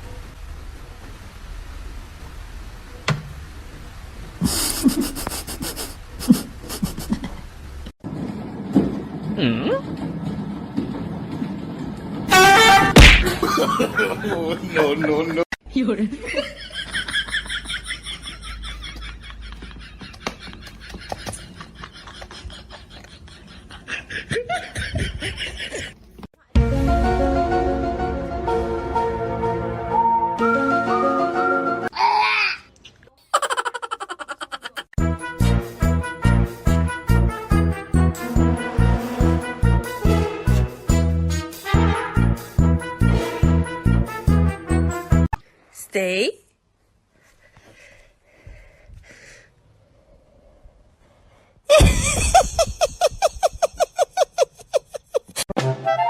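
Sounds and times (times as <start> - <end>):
people laughing: 4.4 - 7.4, 13.3 - 15.4, 16.2 - 26.0, 33.3 - 35.0, 51.7 - 55.4.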